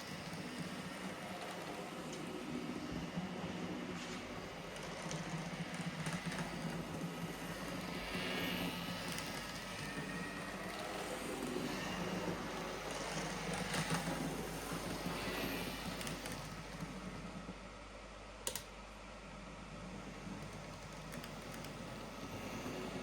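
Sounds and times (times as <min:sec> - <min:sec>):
model train motor whirring: 0:04.7 - 0:17.0.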